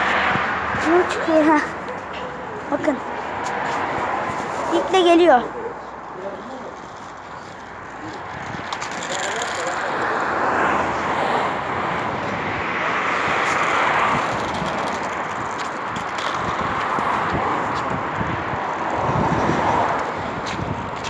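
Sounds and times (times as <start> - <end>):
road traffic passing: 0.0 - 21.0.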